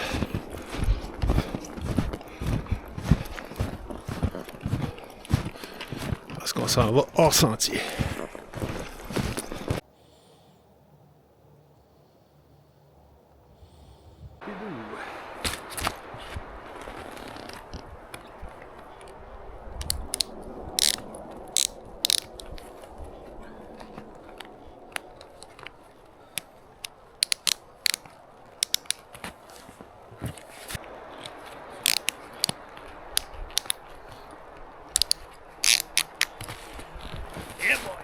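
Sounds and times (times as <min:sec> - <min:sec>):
faint steady hiss: 0:09.4 - 0:38.0.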